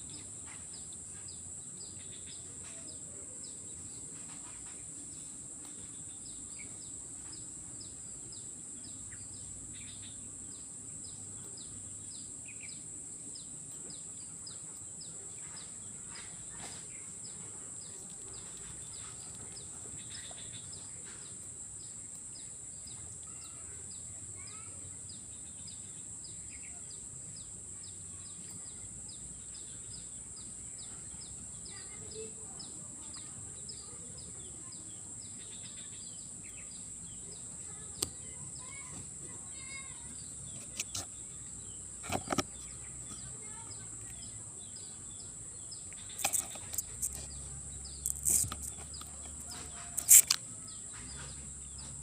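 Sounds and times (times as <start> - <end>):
sharp clicks and knocks: 40.6 - 41.1, 42.0 - 43.3, 45.9 - 47.4, 48.0 - 50.4.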